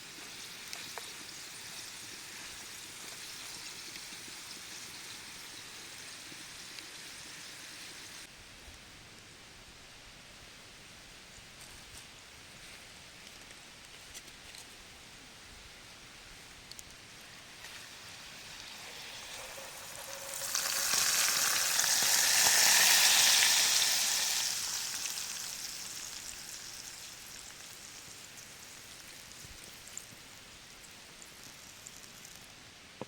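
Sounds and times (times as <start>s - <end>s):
sizzling hiss: 0.0s - 8.3s, 16.7s - 32.6s.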